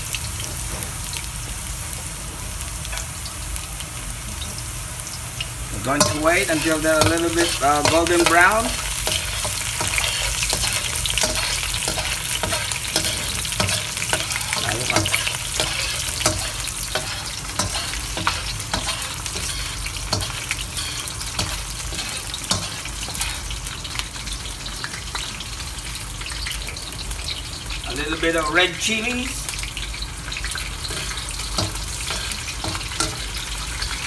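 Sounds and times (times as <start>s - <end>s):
garlic sizzling in hot oil: 0.0s - 34.0s
metal spoon stirring against pan: 5.8s - 23.5s, 30.3s - 34.0s.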